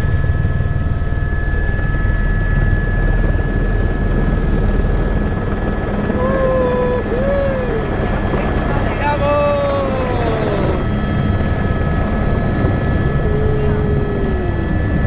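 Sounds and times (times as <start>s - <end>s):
helicopter rotor drone: 0.0s - 15.0s
high whine: 6.0s - 15.0s
voice-like sounds: 6.1s - 8.0s, 9.0s - 10.8s, 13.1s - 15.0s.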